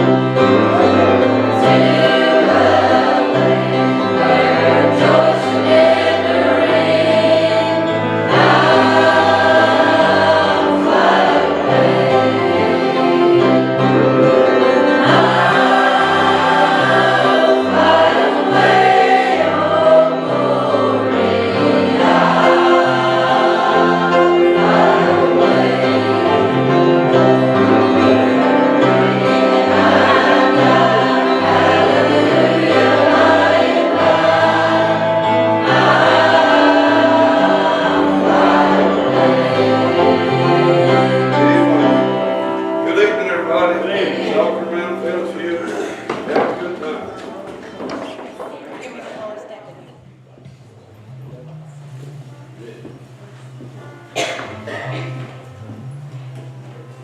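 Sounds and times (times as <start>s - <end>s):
instrumental accompaniment: 0.0s - 48.8s, 49.7s - 57.0s
gospel choir singing: 0.0s - 57.0s
steady bass line: 50.5s - 57.0s.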